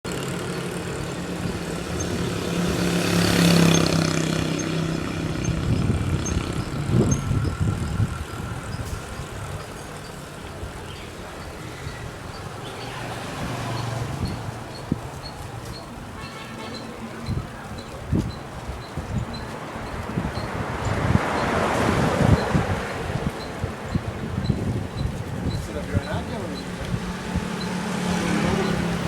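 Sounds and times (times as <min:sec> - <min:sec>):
road traffic passing: 0:00.0 - 0:29.0
faint regular ticking: 0:22.4 - 0:29.0.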